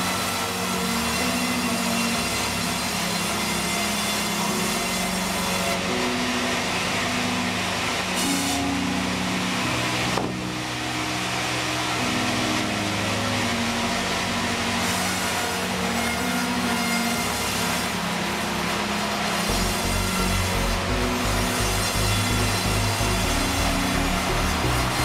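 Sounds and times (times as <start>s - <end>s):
band saw hiss cutting wood: 14.8s - 25.0s
steady machine hum: 17.2s - 25.0s.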